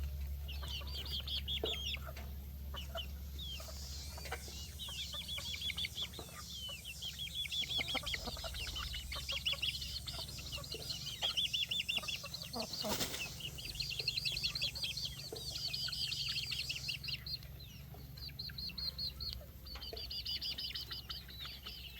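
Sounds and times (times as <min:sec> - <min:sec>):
chicks peeping: 0:00.0 - 0:21.9.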